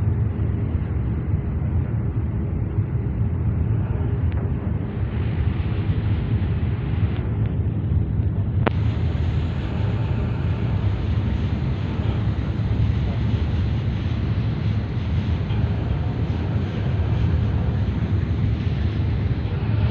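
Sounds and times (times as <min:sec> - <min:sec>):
boat engine rumble: 0:00.0 - 0:19.9
wind on microphone: 0:00.0 - 0:19.9.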